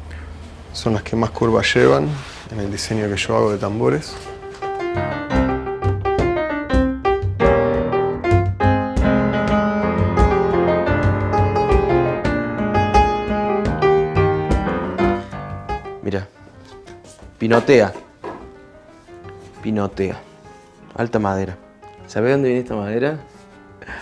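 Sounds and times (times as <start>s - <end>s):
piano music: 3.2s - 24.0s.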